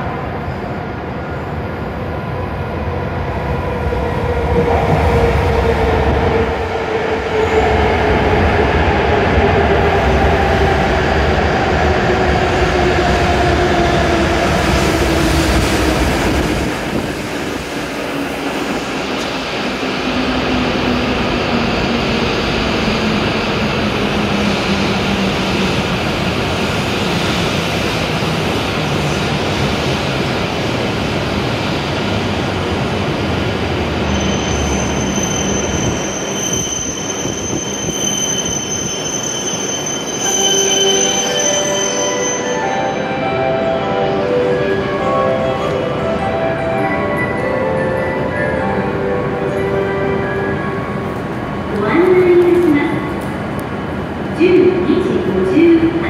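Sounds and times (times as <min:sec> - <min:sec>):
train braking to a stop: 0:33.4 - 0:53.2.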